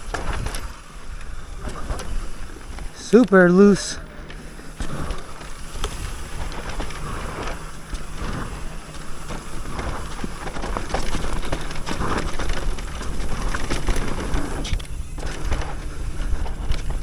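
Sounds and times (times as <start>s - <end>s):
bike clicking and rattling: 0.0s - 17.0s
bike tyres crunching on dirt: 0.0s - 17.0s
wind rumble on microphone: 4.0s - 17.0s.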